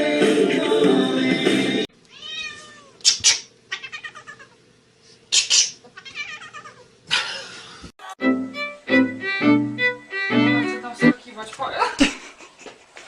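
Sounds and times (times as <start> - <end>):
cat meowing: 2.1 - 3.0, 3.7 - 4.6, 6.0 - 6.8.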